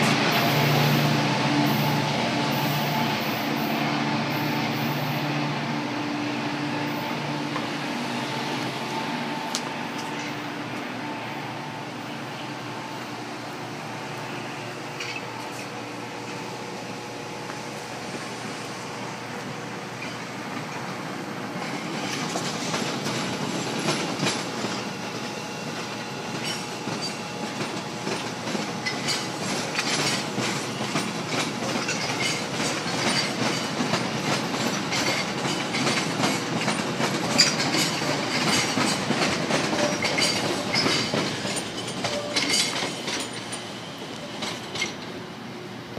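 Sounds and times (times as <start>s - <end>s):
train rail rumble: 0.0s - 45.9s
wheels clicking over rail joints: 25.7s - 45.2s.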